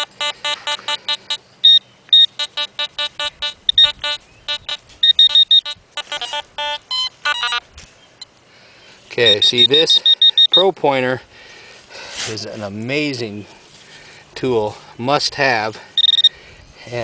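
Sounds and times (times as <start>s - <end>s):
metal detector probe beeping: 0.0s - 7.6s, 9.2s - 10.7s, 16.0s - 16.3s.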